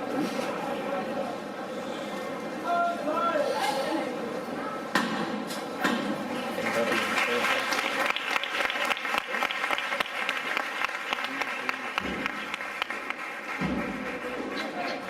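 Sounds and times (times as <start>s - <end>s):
crowd applauding: 6.5s - 15.0s.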